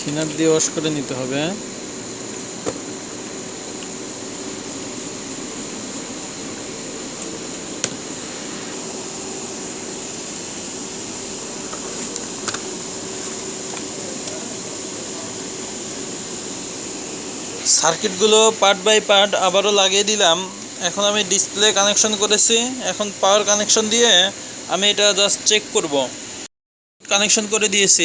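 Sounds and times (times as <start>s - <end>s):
mechanical hum with high whine: 0.0s - 28.0s.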